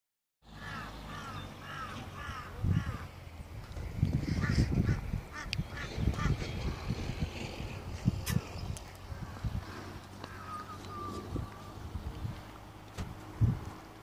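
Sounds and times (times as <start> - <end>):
bird calling: 0.5 - 3.1, 8.3 - 12.0
wind rumbling on microphone: 0.6 - 14.0.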